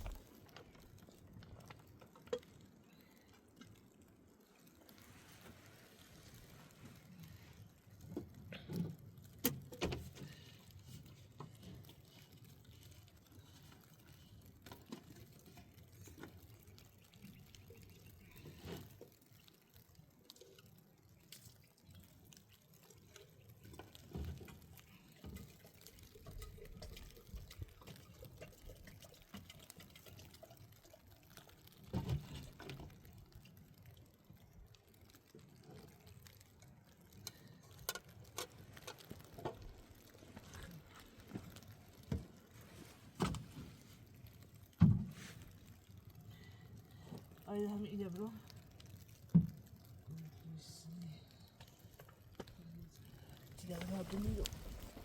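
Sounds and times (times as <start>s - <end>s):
water dripping: 0.0s - 55.0s
water being poured: 11.4s - 43.0s, 51.4s - 55.0s.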